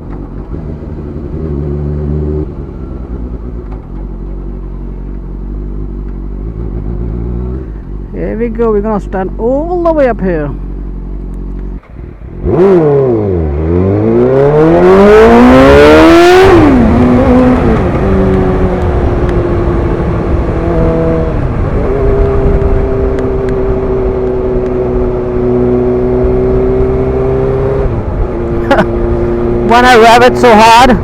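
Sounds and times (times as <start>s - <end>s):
motorcycle engine accelerating: 0.0s - 8.4s, 9.3s - 31.0s
wind rush: 13.9s - 31.0s.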